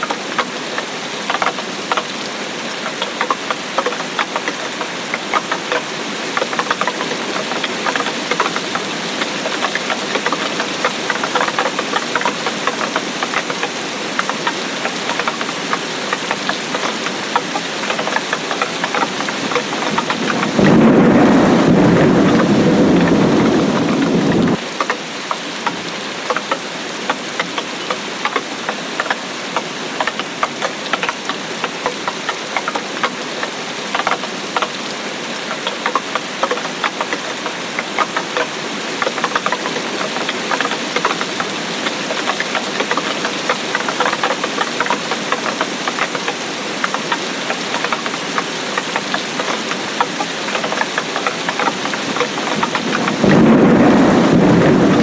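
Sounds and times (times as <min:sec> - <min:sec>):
raindrops ticking: 0:00.0 - 0:55.0
steady rain: 0:00.0 - 0:55.0
thunder rumble: 0:19.8 - 0:24.6, 0:52.4 - 0:55.0.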